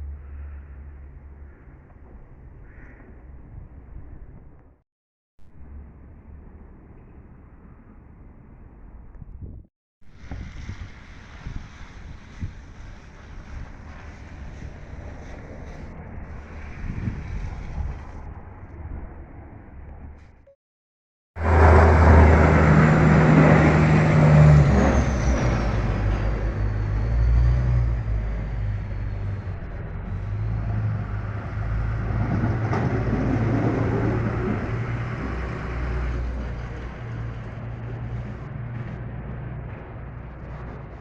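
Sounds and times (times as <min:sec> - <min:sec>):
vehicle engine humming: 0:21.4 - 0:41.0.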